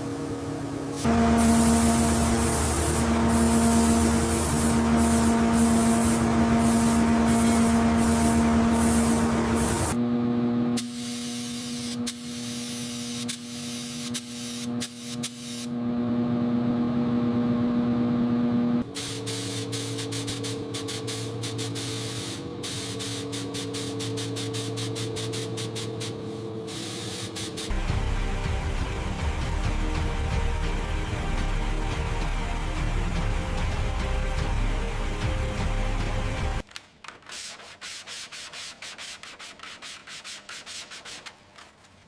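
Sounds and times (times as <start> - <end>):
machine hum: 0.0 - 10.7
hissing spray: 0.9 - 10.0, 36.6 - 42.0
sharp clicks: 36.6 - 37.7.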